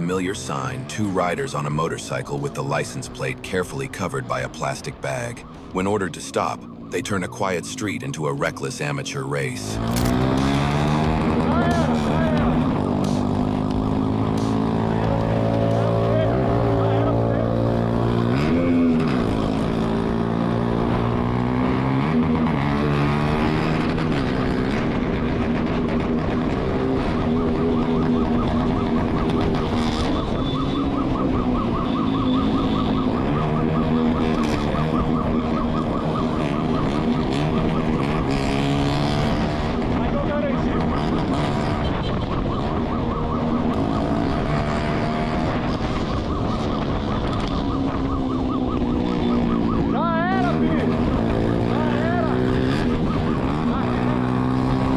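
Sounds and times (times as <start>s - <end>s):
police siren yelping: 2.7s - 54.9s
motorcycle engine revving: 9.8s - 31.2s, 32.0s - 42.1s, 43.2s - 54.9s.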